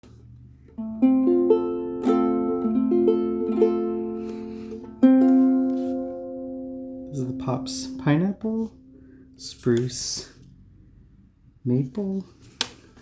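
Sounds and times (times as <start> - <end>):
ukulele playing: 0.6 - 10.1.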